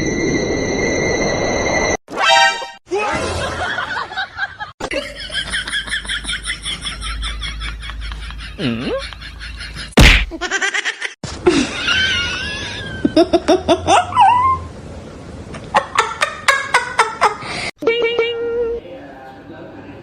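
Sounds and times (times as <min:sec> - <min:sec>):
people laughing: 0:03.3 - 0:10.0
loud smack: 0:10.0 - 0:10.4.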